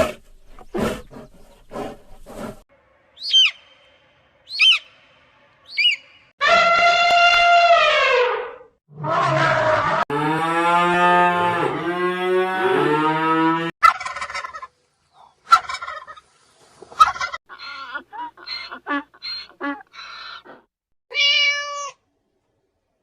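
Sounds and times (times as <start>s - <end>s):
poultry calling rapidly: 4.5s - 4.9s, 17.0s - 20.5s
cattle mooing: 9.0s - 13.7s.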